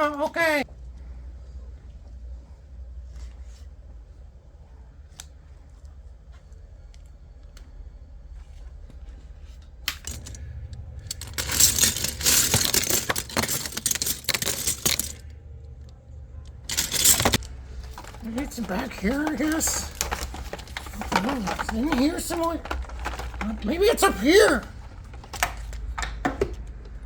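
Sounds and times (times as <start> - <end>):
small hard objects clattering: 9.9 - 15.3, 16.6 - 26.8.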